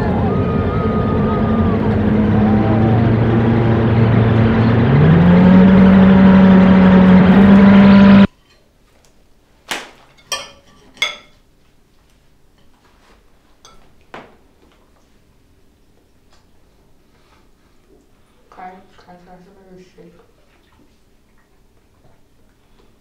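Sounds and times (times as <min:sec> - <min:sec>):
loud low drone: 0:00.0 - 0:08.3
cutlery clinking on plates: 0:10.1 - 0:11.5, 0:13.6 - 0:14.0.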